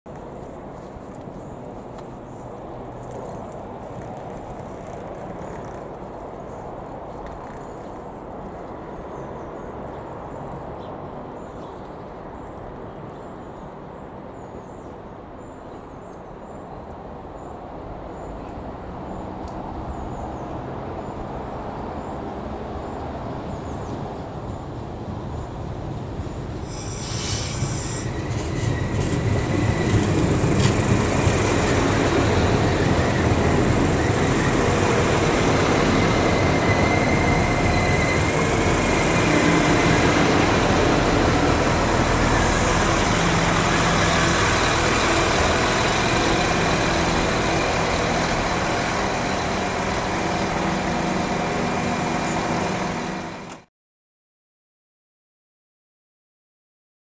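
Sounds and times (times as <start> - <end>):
diesel engines humming: 25.6 - 53.6
train wheels and brakes squealing: 26.2 - 53.6.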